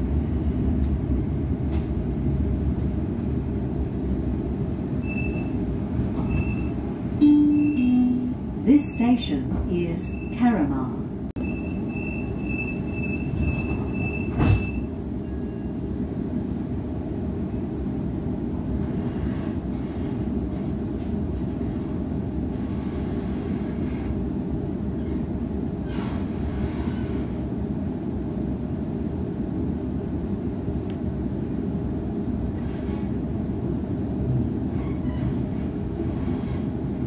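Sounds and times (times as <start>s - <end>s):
train low rumble: 0.0s - 37.0s
high warning tone: 6.2s - 15.6s
doors shutting thud: 14.2s - 14.8s.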